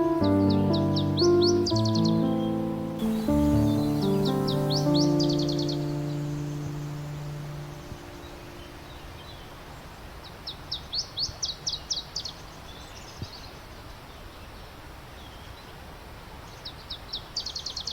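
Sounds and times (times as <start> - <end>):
songbird singing high notes: 0.0 - 9.5
outdoor hiss: 0.0 - 17.9.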